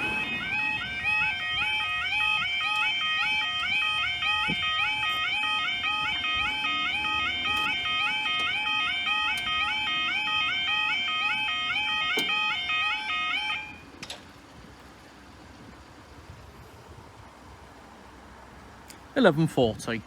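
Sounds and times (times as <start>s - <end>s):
low background rumble: 0.0s - 2.1s
electronic warbling alarm: 0.0s - 13.8s.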